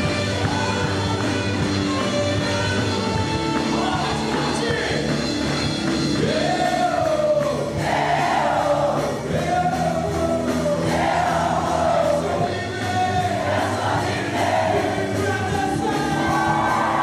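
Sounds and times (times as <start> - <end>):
band accompaniment: 0.0 - 17.0
voices singing together: 6.2 - 17.0.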